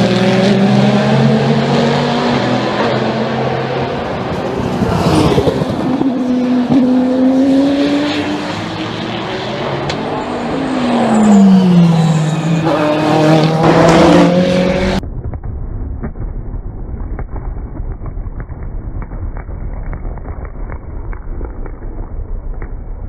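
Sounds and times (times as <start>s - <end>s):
race cars passing by: 0.0s - 15.0s.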